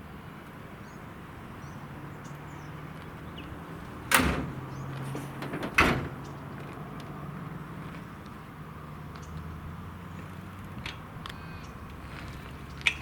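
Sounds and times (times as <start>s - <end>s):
loud knocks: 4.1s - 6.2s.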